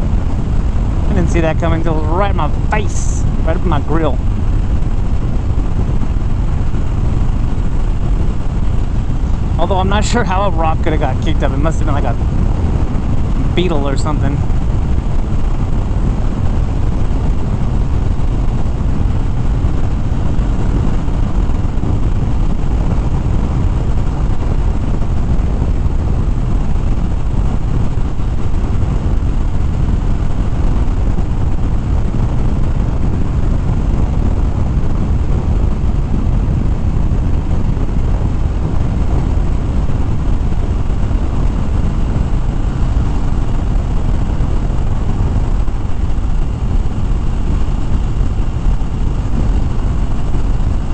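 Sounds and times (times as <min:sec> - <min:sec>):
motorcycle engine running: 0:00.0 - 0:50.9
wind rumble on microphone: 0:00.0 - 0:50.9.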